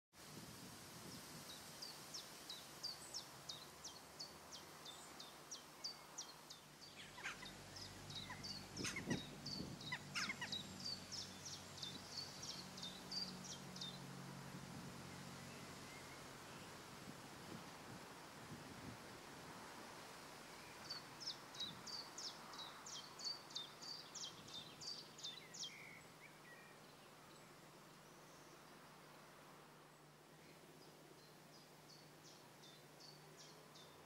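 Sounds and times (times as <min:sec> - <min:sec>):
harsh bird calls: 0:06.9 - 0:13.9.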